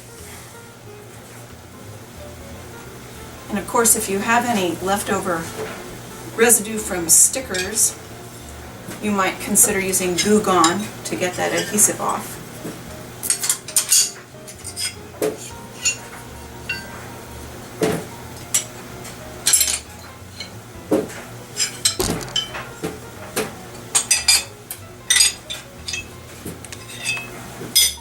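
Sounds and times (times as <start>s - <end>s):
metallophone bars clinking: 13.2s - 16.0s, 19.5s - 20.5s, 21.6s - 22.8s, 23.9s - 24.5s, 25.1s - 28.0s.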